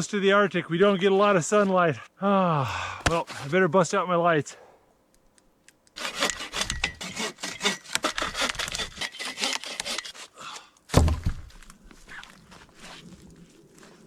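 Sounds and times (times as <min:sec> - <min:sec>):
hand saw cutting wood: 0:03.0 - 0:03.7, 0:05.9 - 0:13.0.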